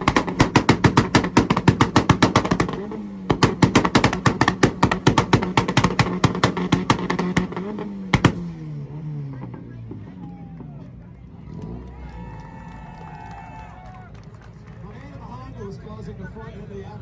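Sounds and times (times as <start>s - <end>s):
car engine on rev limiter: 0.0s - 10.6s
rapid exhaust pops and bangs: 0.0s - 10.8s.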